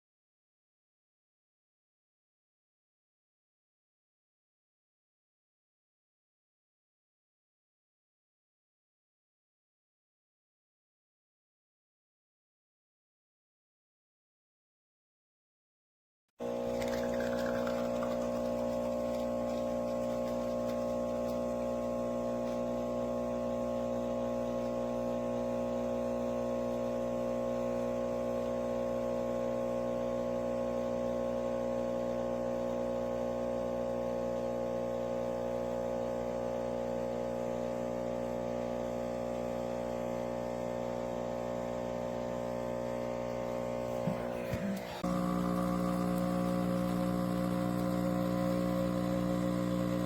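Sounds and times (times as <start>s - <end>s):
electrical hum: 16.4s - 50.0s.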